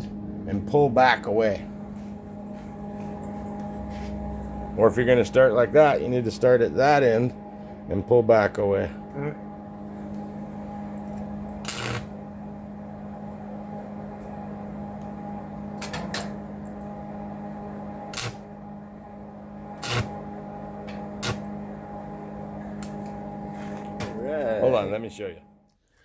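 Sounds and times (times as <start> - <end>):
electrical hum: 0.0 - 26.0
arc welder bursts: 11.6 - 12.1, 15.8 - 16.3, 18.1 - 18.4, 19.8 - 20.2, 21.1 - 21.6.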